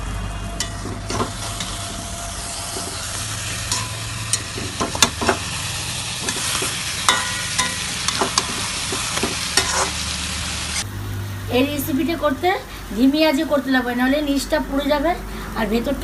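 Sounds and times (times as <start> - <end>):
food sizzling in oil: 0.0 - 16.0
metal spatula scraping pan: 6.2 - 10.0.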